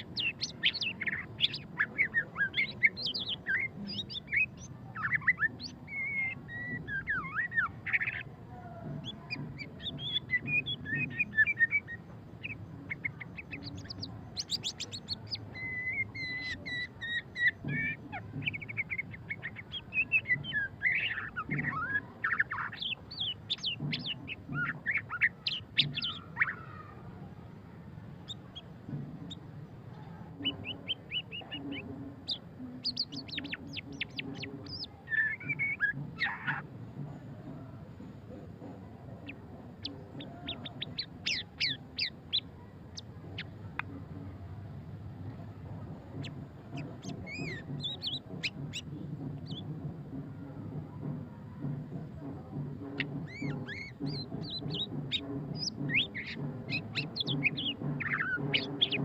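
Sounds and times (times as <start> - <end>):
bird singing whistles and trills: 0.0 - 8.3, 9.0 - 26.8, 30.4 - 36.6, 39.2 - 42.4, 46.2 - 49.7, 53.0 - 59.0.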